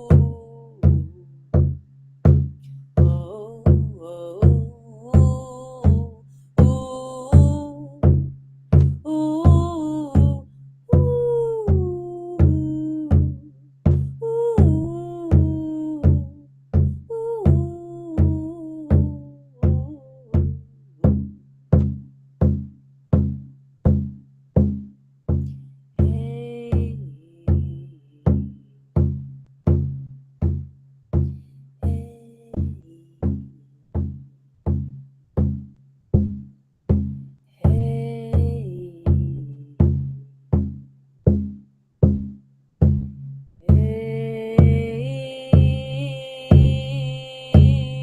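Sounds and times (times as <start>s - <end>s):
person humming: 0.0s - 1.3s, 3.0s - 8.1s, 9.1s - 21.2s, 26.0s - 28.7s, 31.8s - 33.6s, 37.6s - 40.0s, 43.6s - 48.0s
drum beaten steadily: 0.0s - 10.4s, 11.0s - 48.0s.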